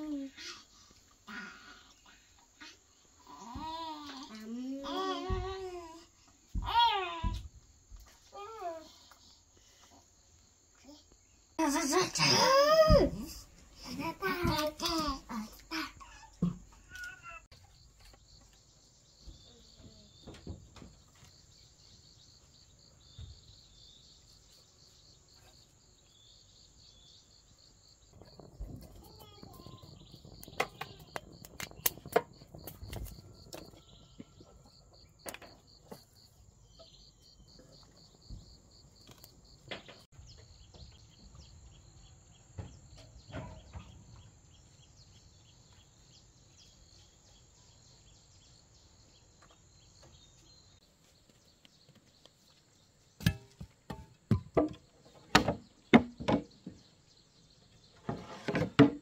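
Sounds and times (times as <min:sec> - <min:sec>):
crickets chirping: 0:17.5 - 0:50.9.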